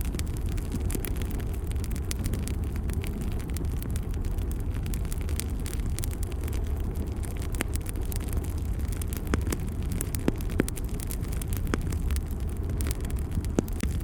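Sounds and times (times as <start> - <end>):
fire rumbling: 0.0 - 14.0
wood crackling and popping: 0.0 - 14.0.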